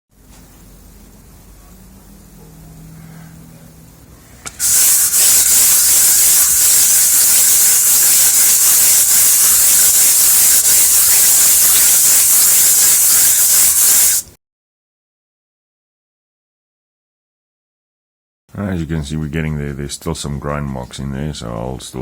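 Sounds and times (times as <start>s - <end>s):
metal plate rubbing on sandpaper: 4.5s - 14.2s.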